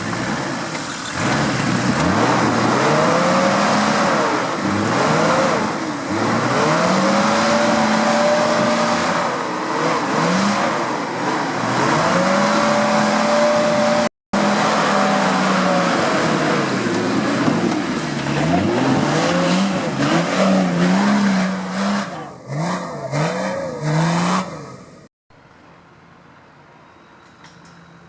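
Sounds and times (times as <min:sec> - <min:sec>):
off-road vehicle engine revving: 0:00.0 - 0:25.1.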